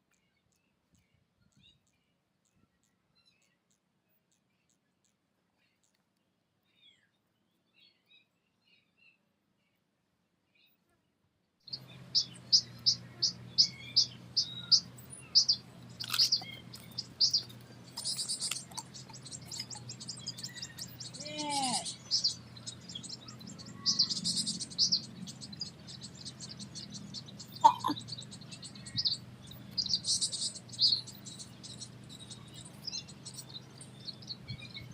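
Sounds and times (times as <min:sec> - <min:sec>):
small birds chirping: 0:00.0 - 0:09.8, 0:11.7 - 0:34.9
steady low hum: 0:11.8 - 0:34.9.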